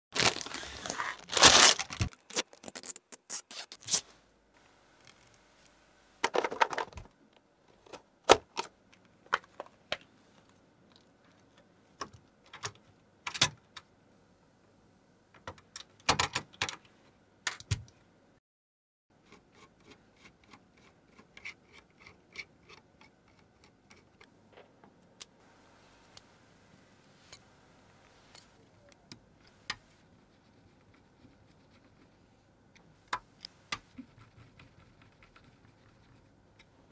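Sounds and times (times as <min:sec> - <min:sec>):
rustling: 0:00.2 - 0:07.1.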